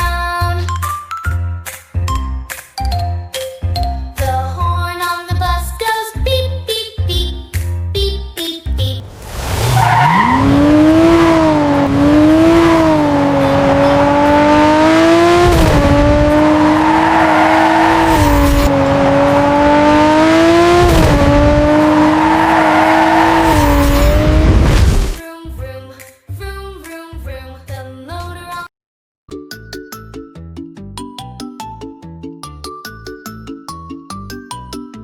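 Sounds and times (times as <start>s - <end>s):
sports car engine revving: 9.0s - 25.2s.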